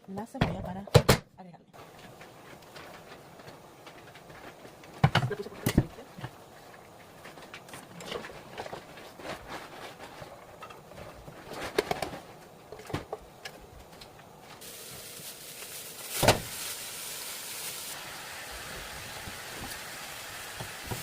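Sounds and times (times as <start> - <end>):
frying sizzle: 1.8 - 9.1, 13.5 - 21.0.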